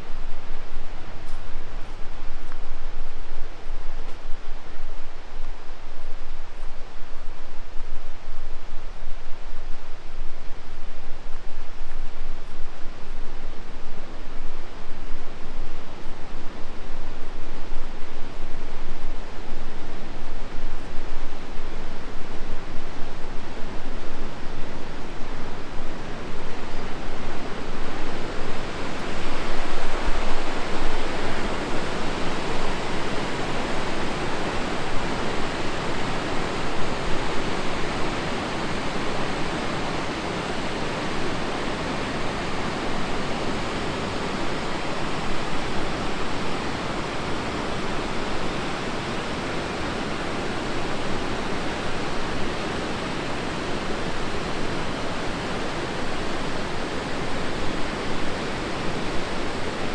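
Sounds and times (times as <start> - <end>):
river rushing over rocks: 22.4 - 59.9.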